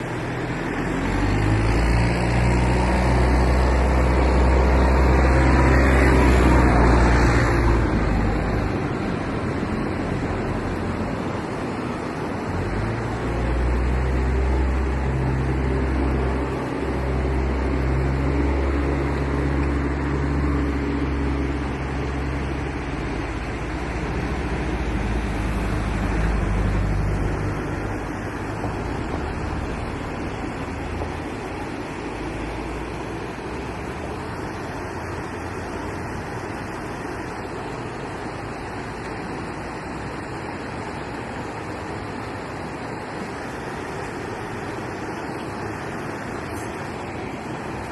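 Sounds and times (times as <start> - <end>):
motor engines passing: 0.0 - 47.9
steady rushing noise: 0.0 - 47.9.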